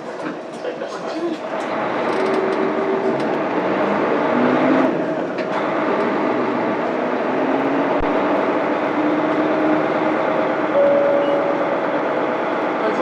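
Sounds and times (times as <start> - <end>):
bus diesel engine under load: 0.0 - 13.0.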